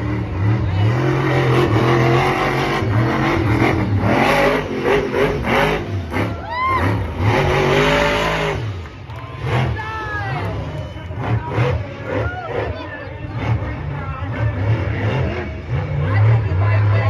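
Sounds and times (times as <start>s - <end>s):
truck engine revving hard: 0.0s - 17.0s.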